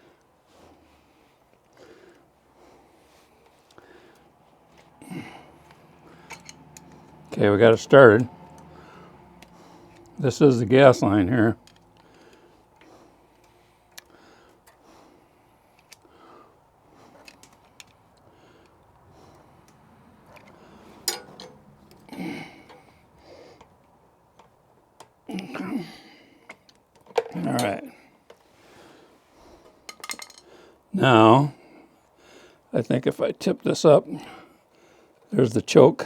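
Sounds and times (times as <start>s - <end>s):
breathing close to microphone: 0.0s - 7.3s, 8.3s - 10.2s, 11.6s - 21.1s, 21.8s - 23.7s, 27.9s - 29.8s
small metal parts clicking: 5.6s - 7.3s, 11.6s - 14.8s, 17.1s - 18.8s, 19.6s - 22.9s, 29.9s - 30.5s.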